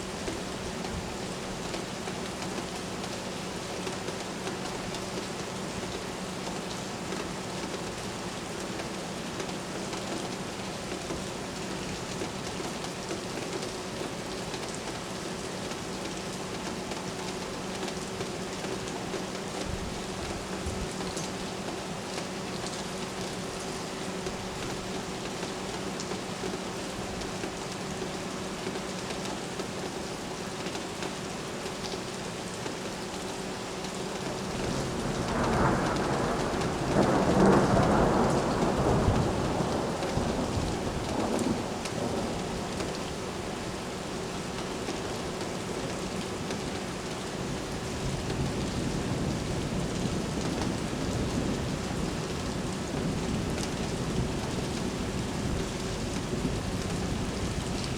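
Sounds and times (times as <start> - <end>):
steady rain: 0.0 - 57.9
thunder rolling: 34.4 - 43.2.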